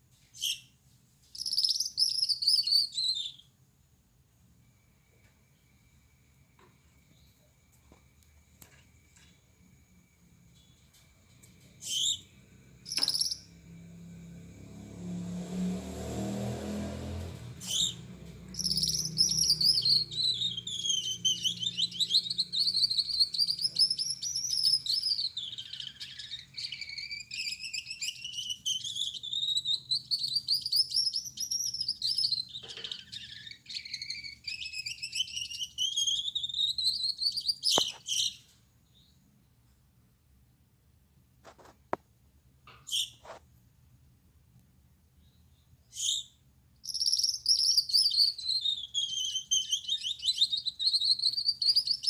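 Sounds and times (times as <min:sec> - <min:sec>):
finch singing buzzy song: 0:00.3 - 0:03.5, 0:11.8 - 0:13.6, 0:17.6 - 0:39.1, 0:45.2 - 0:52.0.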